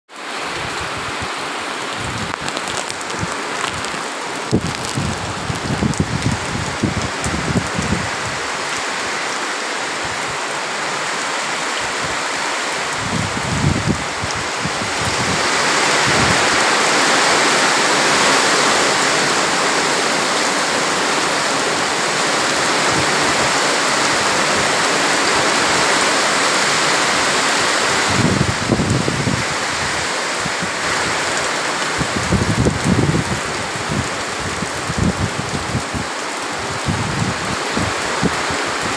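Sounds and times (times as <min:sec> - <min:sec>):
heavy rain pouring: 0:00.1 - 0:38.9.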